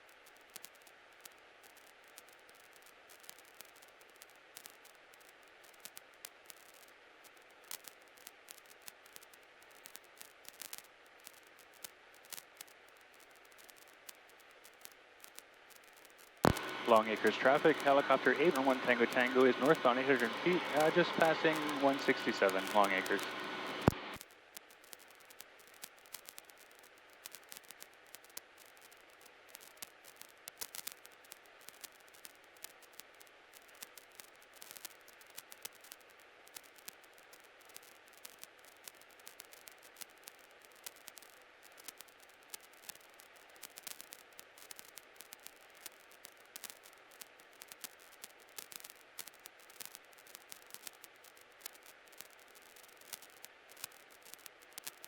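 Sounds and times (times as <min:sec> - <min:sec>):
crackling clicks: 0:00.0 - 0:55.0
static hiss: 0:00.0 - 0:55.0.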